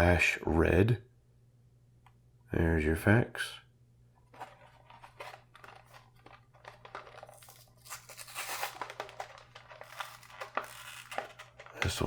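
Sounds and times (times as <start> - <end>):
plastic packaging crinkling: 4.3 - 12.0
card tearing: 4.4 - 12.0.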